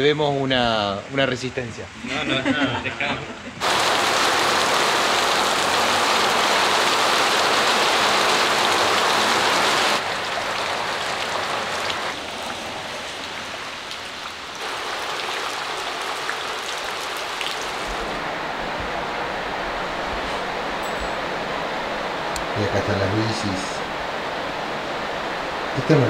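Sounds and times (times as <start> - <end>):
raindrops ticking: 3.6 - 18.1
steady rain falling: 3.6 - 26.0.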